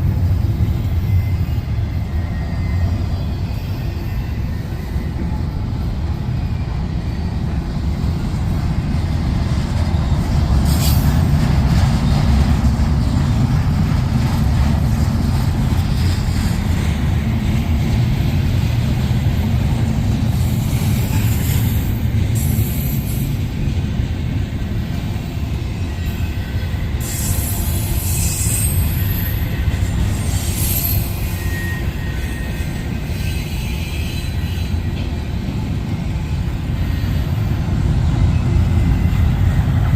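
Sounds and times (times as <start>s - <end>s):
train cars rumbling past: 0.0s - 39.9s
high wheel squeal: 0.6s - 8.3s, 20.3s - 23.3s, 25.7s - 35.3s.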